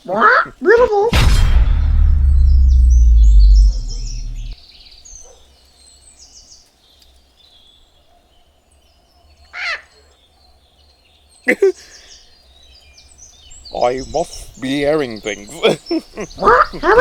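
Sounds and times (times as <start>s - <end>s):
loud low hum: 1.2s - 4.6s
faint bird chirping: 1.7s - 17.0s
bird squawk: 9.5s - 10.2s, 16.2s - 17.0s.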